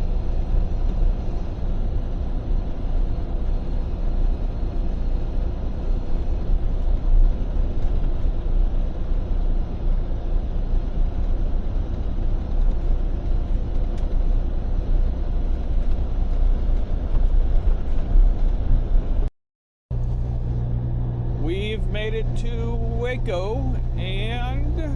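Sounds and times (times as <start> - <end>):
road and wind noise: 0.0 - 19.3
truck engine drone: 19.9 - 24.9.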